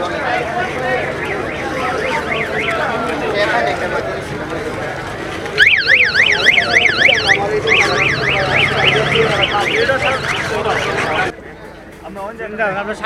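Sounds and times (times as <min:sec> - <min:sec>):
faint voices murmuring: 0:00.0 - 0:13.0
electronic siren alarm warbling: 0:01.1 - 0:03.0, 0:05.6 - 0:11.3.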